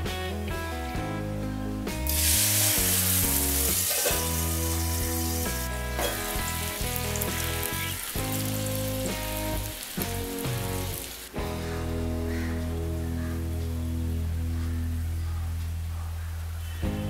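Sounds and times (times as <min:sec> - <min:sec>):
background music: 0:00.0 - 0:17.0
paste sizzling in hot oil: 0:02.1 - 0:11.4.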